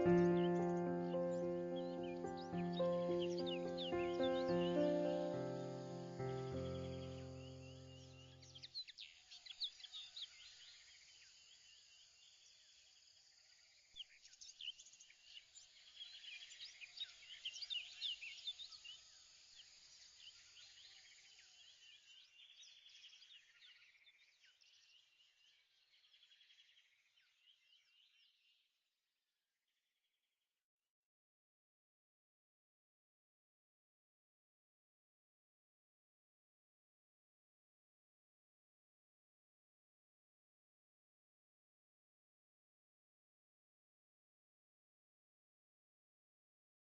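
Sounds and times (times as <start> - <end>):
faint birds chirping: 0.0 - 28.7.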